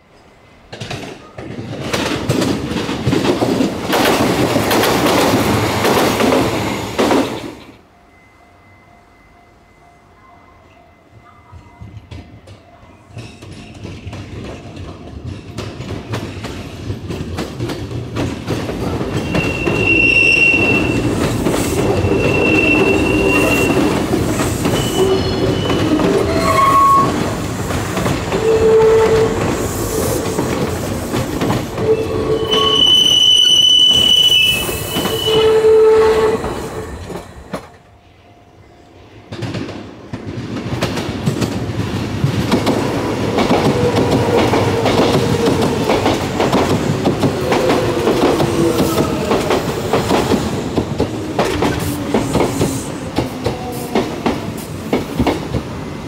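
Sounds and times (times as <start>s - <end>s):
electric train passing: 0.0s - 56.0s
train wheels squealing: 19.1s - 27.4s, 31.8s - 37.5s.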